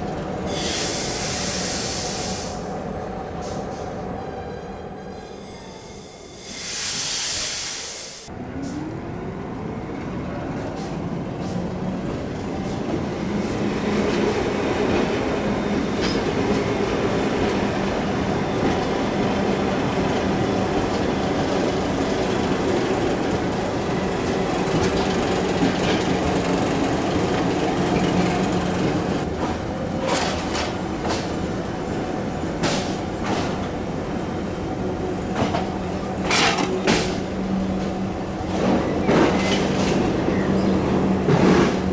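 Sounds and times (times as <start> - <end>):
train air hiss: 0.5 - 2.8, 6.2 - 8.3.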